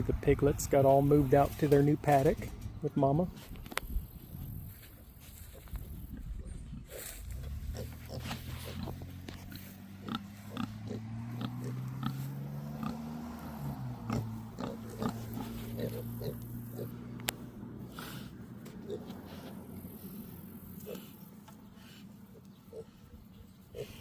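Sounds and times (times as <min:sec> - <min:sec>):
pigs grunting: 0:05.4 - 0:24.0.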